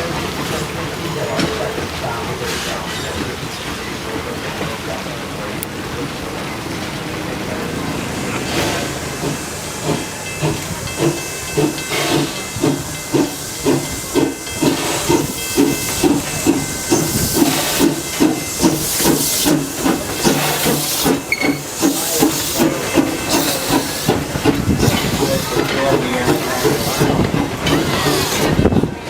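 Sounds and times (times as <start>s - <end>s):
steam locomotive exhaust chuffing: 0.0s - 29.0s
steam hiss: 7.8s - 28.7s.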